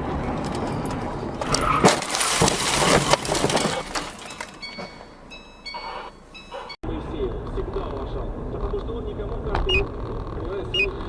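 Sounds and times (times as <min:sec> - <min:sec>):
vehicle crash: 0:00.3 - 0:11.0
glass breaking: 0:01.8 - 0:05.1.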